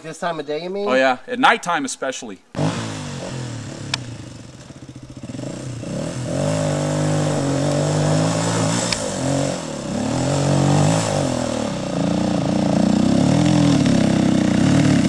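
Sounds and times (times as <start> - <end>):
dirt bike engine running: 2.6 - 15.0
sharp tick: 3.9 - 4.7, 8.8 - 9.1.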